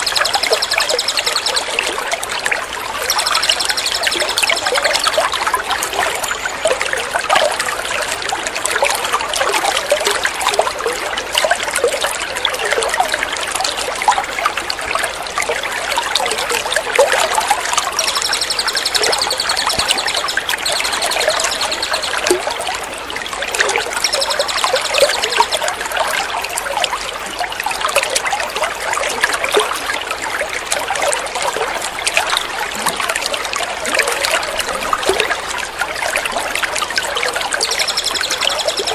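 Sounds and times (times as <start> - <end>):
songbird trilling: 0.0 - 1.8, 3.1 - 5.2, 17.8 - 22.4, 23.8 - 25.6, 37.6 - 38.9
trickling water: 0.0 - 38.9.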